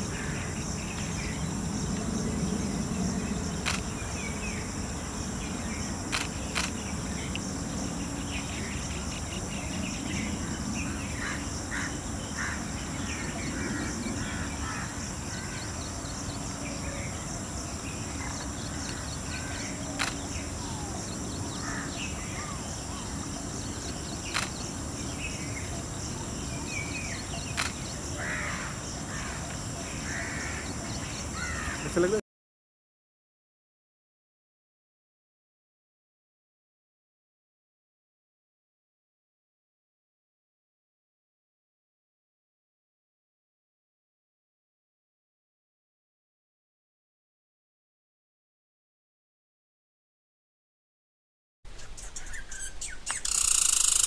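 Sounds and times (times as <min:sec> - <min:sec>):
insects humming: 0:00.0 - 0:32.2, 0:51.7 - 0:54.0
sharp clicks: 0:03.6 - 0:03.9, 0:06.1 - 0:07.4, 0:20.0 - 0:20.3, 0:24.3 - 0:24.6, 0:27.6 - 0:27.8.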